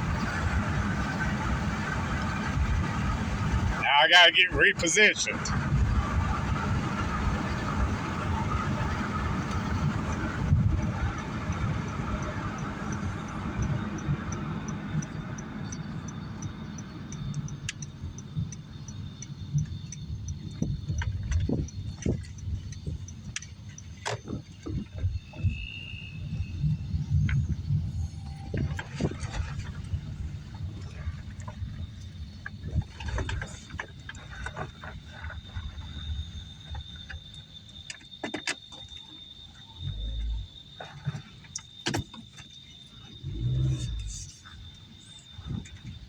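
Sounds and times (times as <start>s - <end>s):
car engine idling: 0.0s - 46.0s
car road and engine noise: 0.0s - 46.0s
scattered clicks and knocks: 9.4s - 25.5s
even high ticks: 9.5s - 27.5s.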